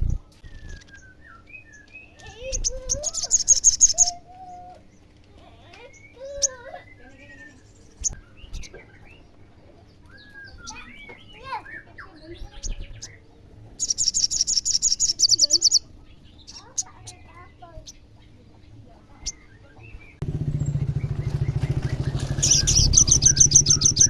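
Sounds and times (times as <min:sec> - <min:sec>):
sharp bird chips: 0:00.4 - 0:04.2, 0:13.8 - 0:18.1, 0:19.2 - 0:24.0
bird chattering trill: 0:02.2 - 0:04.6, 0:13.8 - 0:18.0, 0:20.2 - 0:24.0
lower sliding bird calls: 0:20.2 - 0:24.0.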